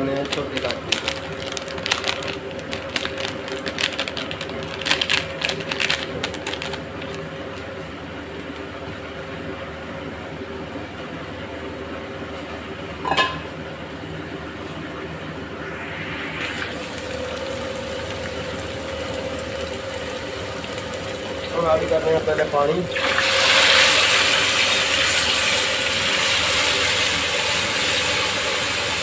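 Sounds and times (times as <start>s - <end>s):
steady hum: 13.0s - 25.0s.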